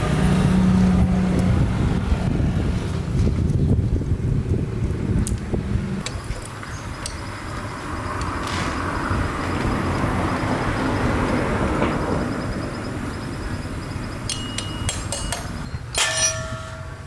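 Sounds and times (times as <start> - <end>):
broad rushing noise: 0.0 - 17.0
sharp metallic clinks: 6.9 - 8.0, 11.9 - 17.0.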